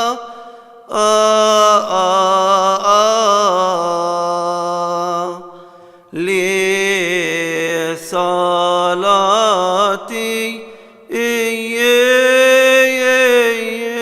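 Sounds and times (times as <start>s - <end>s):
man chanting a hymn: 0.0s - 14.0s
man breathing: 0.2s - 0.9s, 5.5s - 6.2s, 10.6s - 11.1s.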